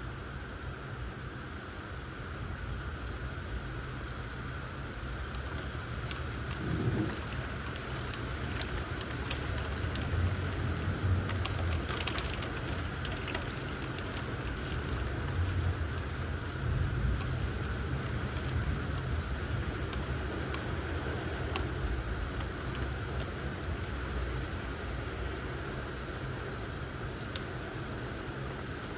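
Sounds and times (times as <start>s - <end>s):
steady rain: 0.0s - 28.9s
raindrops ticking: 2.9s - 28.9s
low rumbles of thunder: 5.1s - 24.9s.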